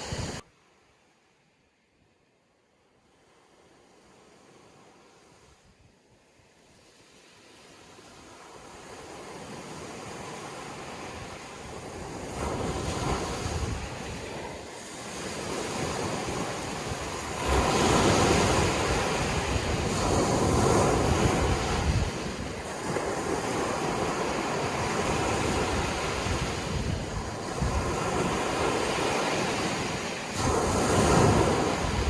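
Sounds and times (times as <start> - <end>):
sea waves breaking on shore: 0.0 - 0.4, 3.1 - 32.0
wind buffeting microphone: 0.0 - 0.4, 9.4 - 32.0.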